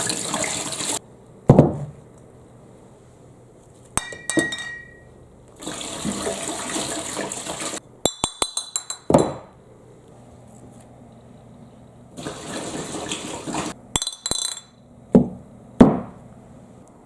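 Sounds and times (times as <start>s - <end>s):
glass marbles clinking: 4.0s - 5.1s, 8.1s - 9.3s, 14.0s - 14.8s.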